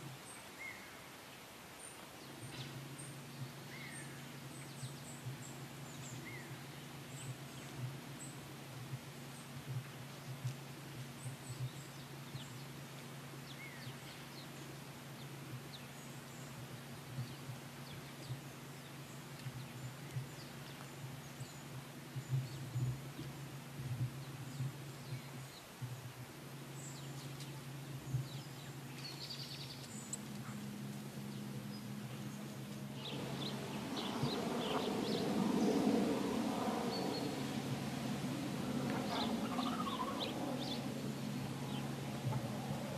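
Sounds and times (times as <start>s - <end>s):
steady low hum: 0.0s - 42.9s
faint bird chirps: 38.6s - 42.9s.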